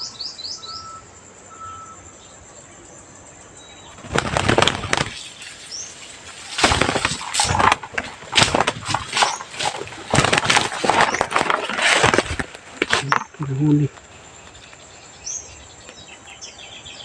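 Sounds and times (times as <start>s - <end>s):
bird wings flapping: 3.9s - 14.6s.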